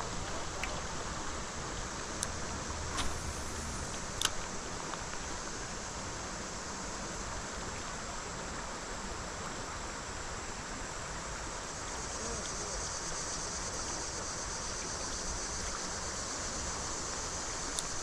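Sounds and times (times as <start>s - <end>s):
creek water rushing: 0.0s - 10.3s.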